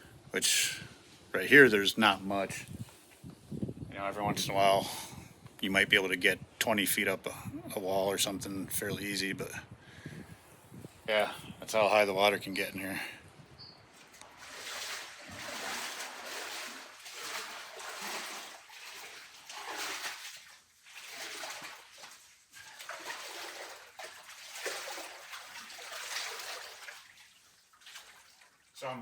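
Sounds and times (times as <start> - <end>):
person wading through water: 13.9 - 28.8.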